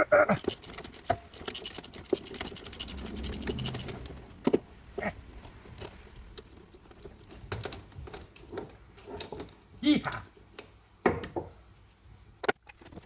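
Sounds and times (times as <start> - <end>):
ratchet wrench clicking: 0.4 - 4.3
tool knocks: 11.0 - 11.6.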